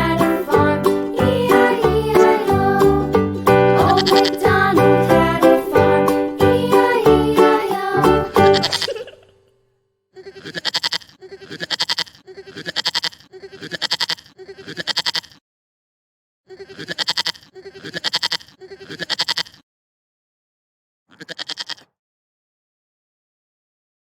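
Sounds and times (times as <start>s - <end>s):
quavering bleating calls: 3.9s - 4.5s, 8.5s - 9.4s, 10.2s - 15.4s, 16.5s - 19.6s, 21.1s - 22.0s.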